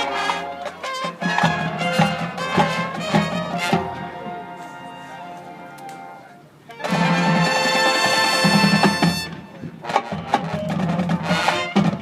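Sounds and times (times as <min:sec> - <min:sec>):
brass section chord: 0:00.0 - 0:10.2
drum hits: 0:01.0 - 0:04.0, 0:07.1 - 0:12.0.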